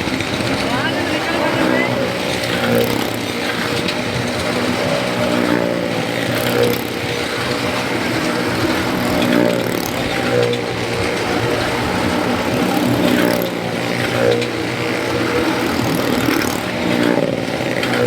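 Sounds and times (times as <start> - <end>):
motorcycle engines running hard: 0.0 - 18.0.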